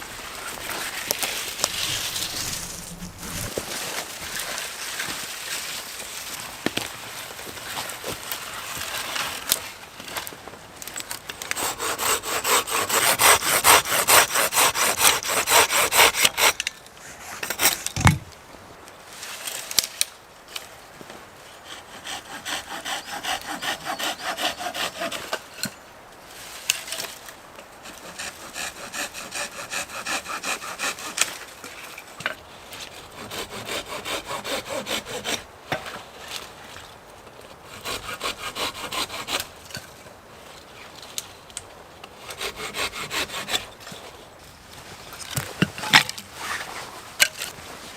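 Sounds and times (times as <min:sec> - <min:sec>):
hand saw cutting wood: 0:00.0 - 0:05.2, 0:11.4 - 0:18.3, 0:21.5 - 0:25.7, 0:27.8 - 0:31.6, 0:33.0 - 0:35.5, 0:37.7 - 0:39.8, 0:42.2 - 0:43.8
thump: 0:18.0 - 0:18.3.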